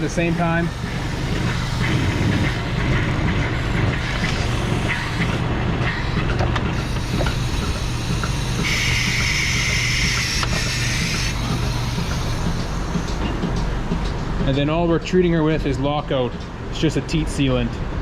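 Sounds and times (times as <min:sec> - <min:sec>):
air hissing: 0:00.0 - 0:03.2, 0:03.9 - 0:05.4, 0:06.8 - 0:13.5
machinery clicks and knocks: 0:00.0 - 0:15.4
machinery humming: 0:00.0 - 0:18.0.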